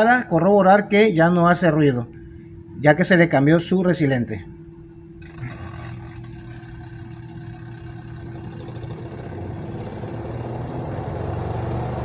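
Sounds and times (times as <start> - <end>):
washing machine spin motor humming: 0.0 - 12.0.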